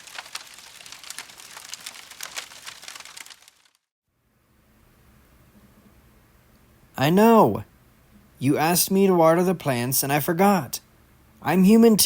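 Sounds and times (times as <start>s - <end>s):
crackling and crinkling with snaps: 0.0s - 3.9s.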